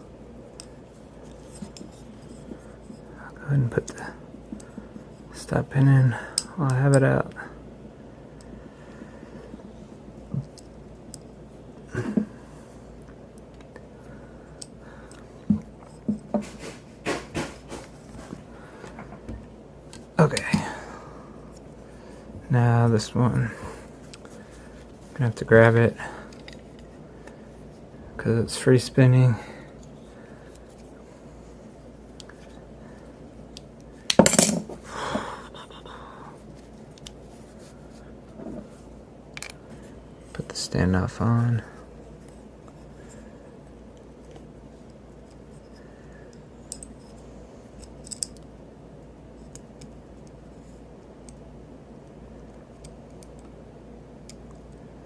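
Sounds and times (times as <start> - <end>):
soft handling and scraping: 0.1 - 6.2, 8.4 - 34.0, 36.3 - 48.3.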